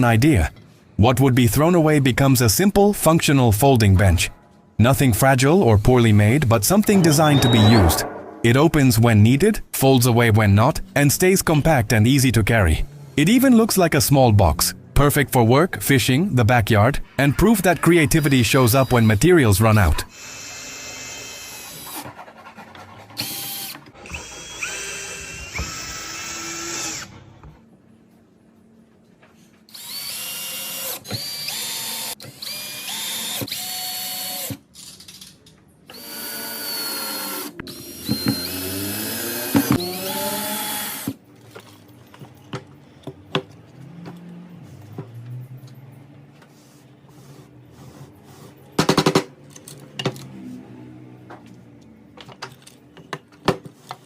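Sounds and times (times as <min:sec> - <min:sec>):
power drill drilling into wood: 0:23.3 - 0:27.1, 0:35.9 - 0:41.2.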